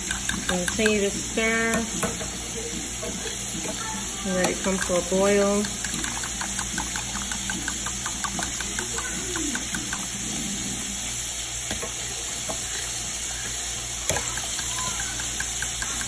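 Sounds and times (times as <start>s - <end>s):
metal spoon stirring gravy: 0.0s - 2.3s, 3.6s - 10.3s, 14.1s - 16.0s
steak frying in grease: 0.0s - 16.0s.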